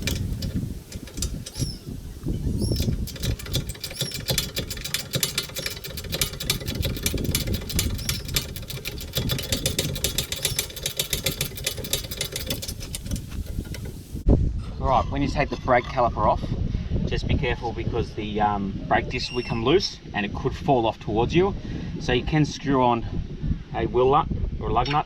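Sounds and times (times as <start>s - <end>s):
ratchet spanner clicking: 0.0s - 1.9s, 2.6s - 14.2s.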